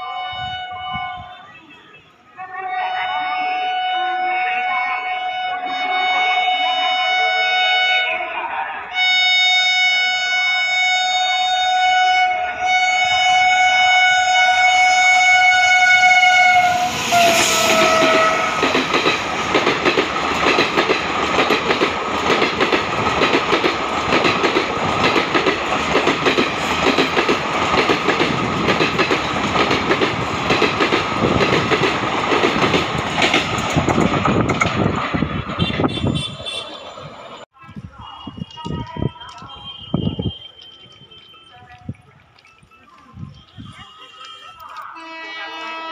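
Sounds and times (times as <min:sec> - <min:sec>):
locomotive horn blast: 0:00.0 - 0:18.9, 0:35.5 - 0:36.9, 0:43.6 - 0:45.9.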